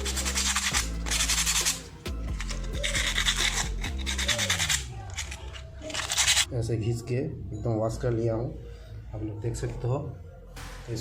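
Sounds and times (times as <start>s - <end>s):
brake pad scraping on sandpaper: 0.0s - 6.5s
background music: 0.0s - 11.0s.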